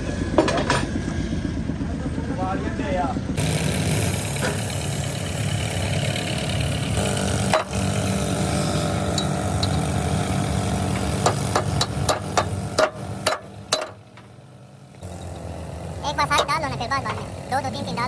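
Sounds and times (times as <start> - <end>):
engine running: 0.0 - 18.0
sharp metallic knocks: 7.2 - 8.0, 10.8 - 14.4.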